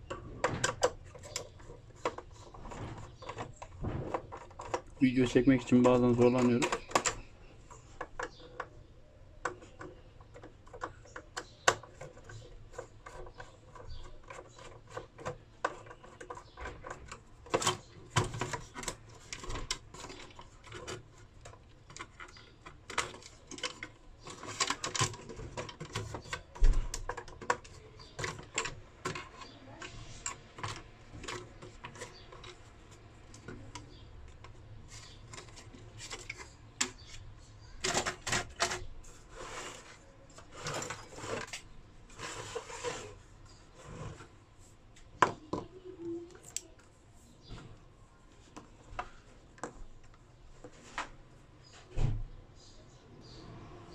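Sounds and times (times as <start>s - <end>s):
hand tools clicking and tapping: 0.0s - 8.8s, 9.4s - 37.2s.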